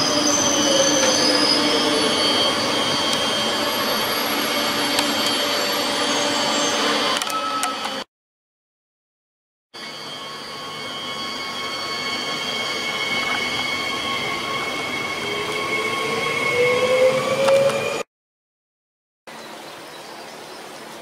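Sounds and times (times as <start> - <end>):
freight train rolling past: 0.0 - 7.2, 9.8 - 18.1
high-pitched wheel squeal: 0.0 - 8.0, 9.8 - 18.1
lower squeal rising in pitch: 0.0 - 8.1, 9.8 - 18.1.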